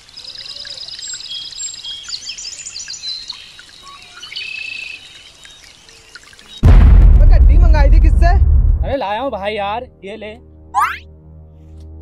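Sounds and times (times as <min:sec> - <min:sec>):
birds singing: 0:00.0 - 0:06.6.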